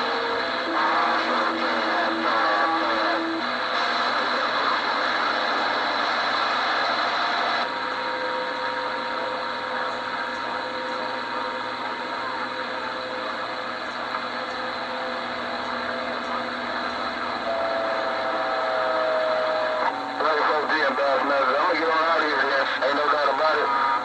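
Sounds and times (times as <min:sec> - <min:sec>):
radio static hiss: 0:00.0 - 0:24.0
whistling tones: 0:17.4 - 0:20.2.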